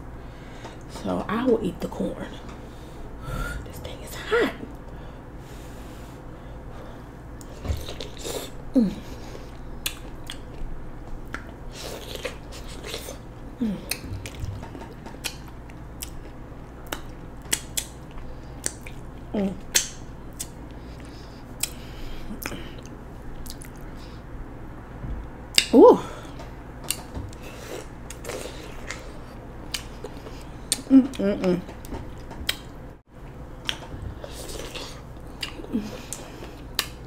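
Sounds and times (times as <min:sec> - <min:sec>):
wet mouth sounds: 0:19.7 - 0:24.0.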